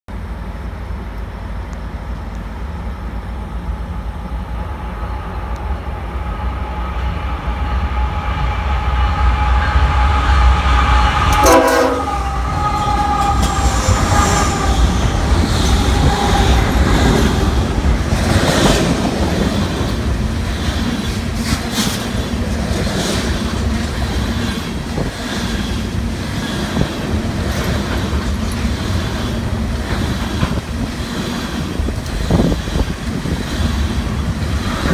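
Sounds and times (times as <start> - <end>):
locomotive engine rumble: 0.1 - 34.9
train air horn chord: 7.8 - 14.9
train wheels clacking over rail joints: 11.3 - 34.9.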